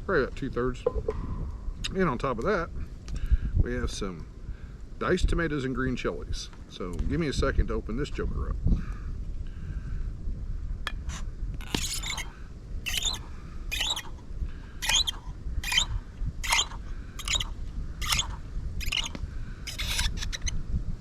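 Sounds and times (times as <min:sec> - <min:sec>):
low wind rumble: 0:00.0 - 0:21.0
can opener scraping crunch: 0:11.6 - 0:14.2, 0:14.8 - 0:20.5.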